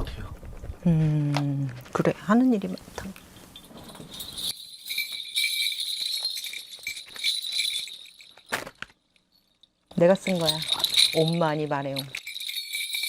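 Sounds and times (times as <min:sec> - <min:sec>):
small metal bells jingling: 0:03.2 - 0:13.0.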